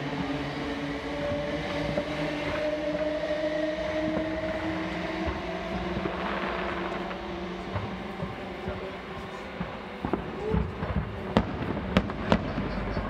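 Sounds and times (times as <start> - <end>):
engine-like drone: 0.0 - 13.0
distant fireworks popping: 6.0 - 13.0.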